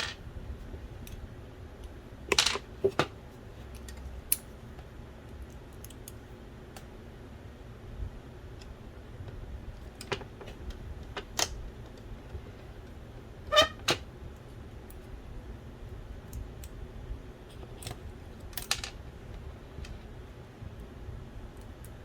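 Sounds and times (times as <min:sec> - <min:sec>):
small parts clicking and knocking: 0:05.3 - 0:06.2, 0:17.5 - 0:19.0.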